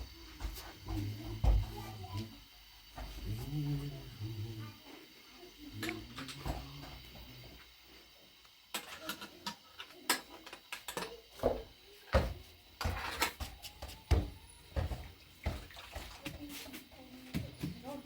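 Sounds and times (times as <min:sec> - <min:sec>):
kitchen things knocking and clattering: 0:08.7 - 0:16.2.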